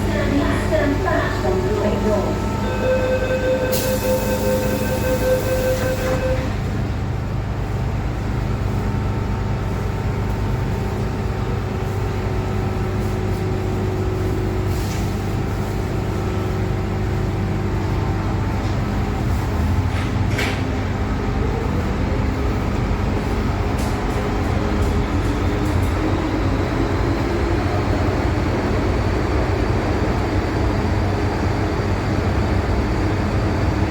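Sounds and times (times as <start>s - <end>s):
electric train rumbling: 0.0s - 33.9s
high tone: 2.5s - 6.6s.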